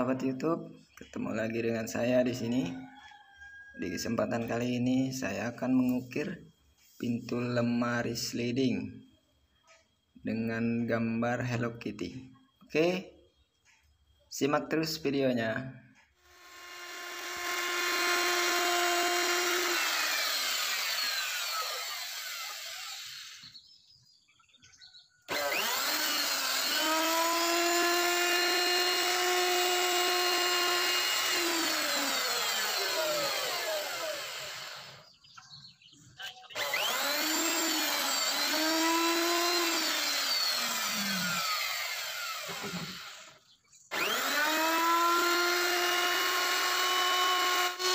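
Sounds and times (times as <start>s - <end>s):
wood router cutting wood: 16.3s - 23.6s, 25.3s - 35.0s, 36.6s - 47.9s.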